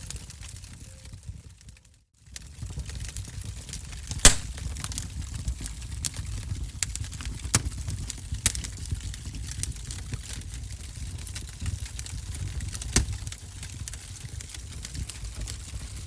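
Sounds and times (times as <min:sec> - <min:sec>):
wood fire crackling and popping: 0:03.9 - 0:16.0.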